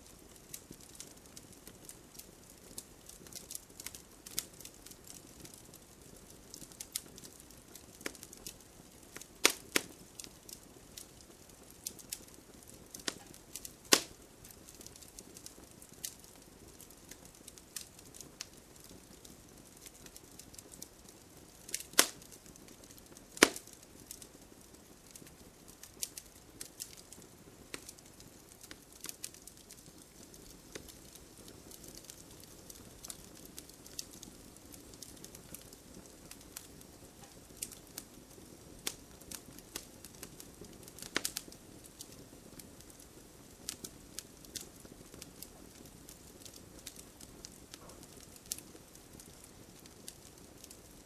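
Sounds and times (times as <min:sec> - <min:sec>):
faint low hiss: 0:00.0 - 0:51.0
wood fire crackling: 0:00.0 - 0:51.0
loud pops from burning logs: 0:00.1 - 0:51.0.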